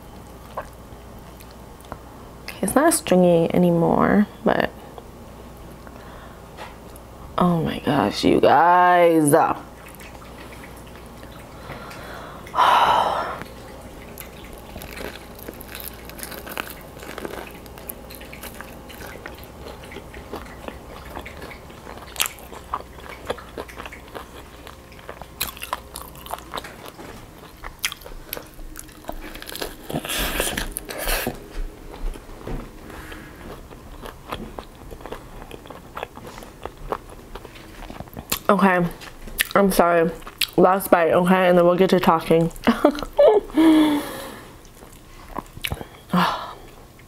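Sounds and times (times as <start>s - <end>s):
crunchy chewing of fried chicken: 13.4s - 39.6s, 40.2s - 40.6s, 44.6s - 46.0s.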